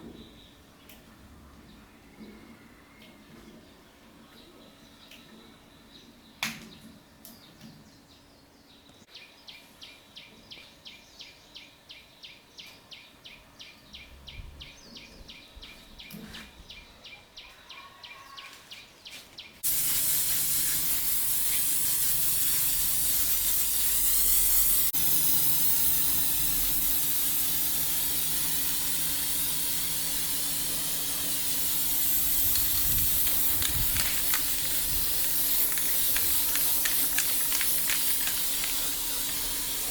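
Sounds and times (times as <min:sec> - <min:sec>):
blower rushing air: 0:19.6 - 0:39.9.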